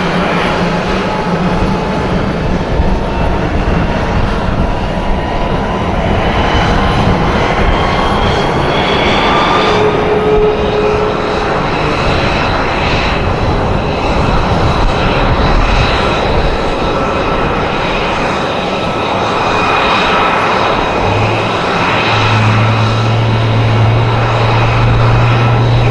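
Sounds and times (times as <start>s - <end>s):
low hum: 0.0s - 17.1s, 17.8s - 25.9s
aircraft engine rush: 0.0s - 25.9s
faint whining tones: 6.1s - 13.7s.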